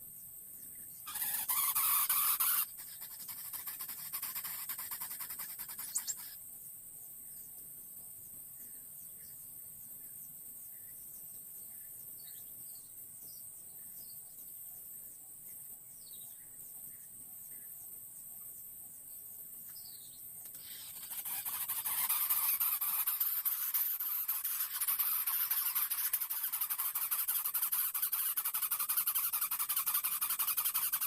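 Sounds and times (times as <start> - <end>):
loud fluttering hiss: 0.0 - 8.6, 18.6 - 31.0
high insect-like drone: 1.0 - 6.5, 20.5 - 31.0.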